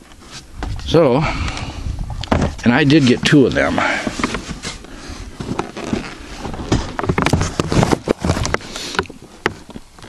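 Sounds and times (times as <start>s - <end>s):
boxes knocking and rustling: 2.3s - 9.8s.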